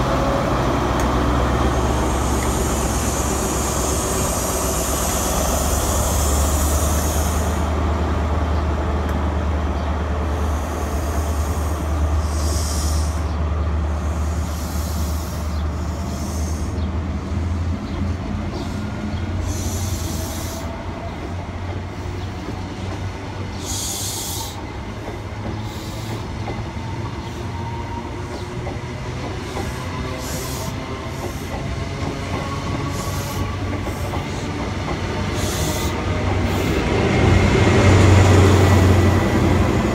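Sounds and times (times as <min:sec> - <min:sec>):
train engine drone: 0:00.0 - 0:39.9
train wheel and rail noise: 0:00.0 - 0:39.9
short hissing bursts: 0:02.0 - 0:07.7, 0:10.3 - 0:13.3, 0:14.0 - 0:16.8, 0:19.4 - 0:20.7, 0:23.6 - 0:24.7, 0:35.3 - 0:36.8.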